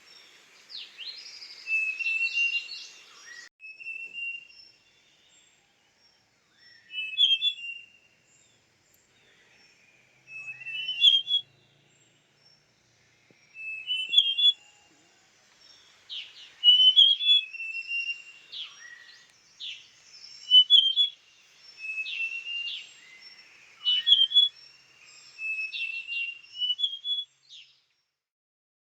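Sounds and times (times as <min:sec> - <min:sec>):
bird singing whistled notes: 0:00.2 - 0:12.6, 0:13.3 - 0:27.9
sharp falling bird calls: 0:06.6 - 0:12.3, 0:13.0 - 0:14.9, 0:15.7 - 0:27.2.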